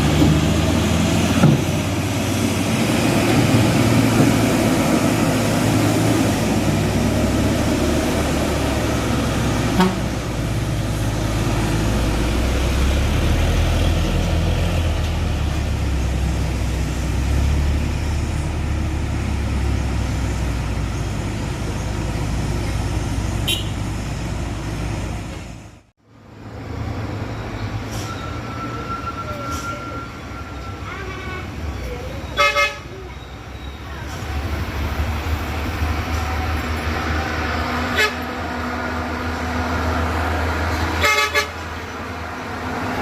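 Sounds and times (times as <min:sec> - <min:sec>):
truck engine droning: 0:00.0 - 0:43.0.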